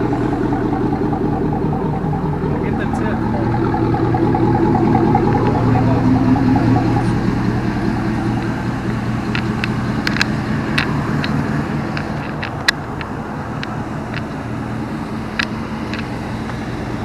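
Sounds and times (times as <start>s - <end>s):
vehicle engine humming: 0.0s - 17.0s
sharp clicks: 7.9s - 14.4s.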